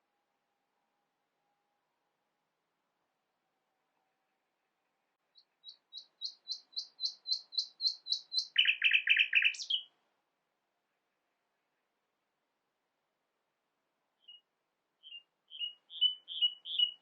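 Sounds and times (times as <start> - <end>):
nightingale singing: 5.3 - 10.0, 14.2 - 17.0.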